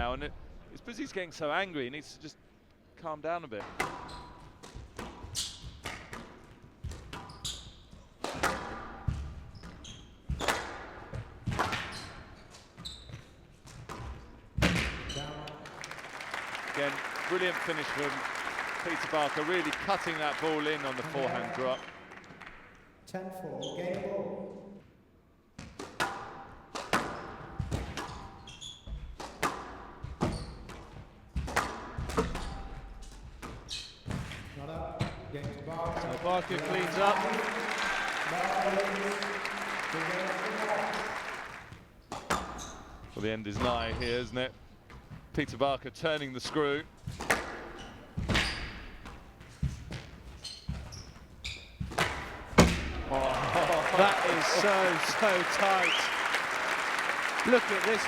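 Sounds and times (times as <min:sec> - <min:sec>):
squash ball hitting rackets and walls: 0:03.6 - 0:15.1, 0:25.6 - 0:34.5, 0:42.1 - 0:43.0, 0:47.0 - 0:51.0, 0:51.7 - 0:53.0
shoes squeaking on court floor: 0:03.9 - 0:06.0, 0:06.8 - 0:08.2, 0:09.1 - 0:10.5, 0:11.8 - 0:15.5, 0:27.2 - 0:29.2, 0:30.0 - 0:31.1, 0:32.4 - 0:34.4, 0:42.0 - 0:43.2, 0:47.1 - 0:52.4.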